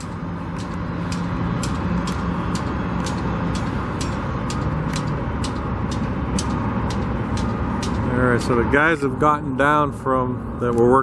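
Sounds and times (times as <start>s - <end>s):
sharp repeating tick: 0.0s - 8.2s
engines and road traffic rumble: 0.0s - 11.0s.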